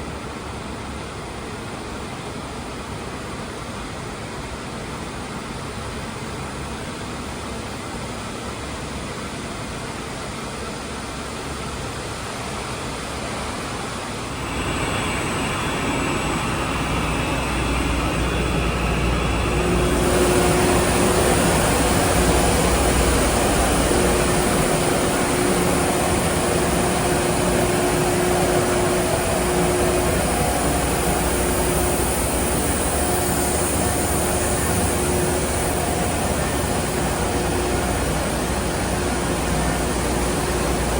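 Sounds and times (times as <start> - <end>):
industrial machinery noise: 12.4 - 40.9
steady hum tone: 13.0 - 40.9.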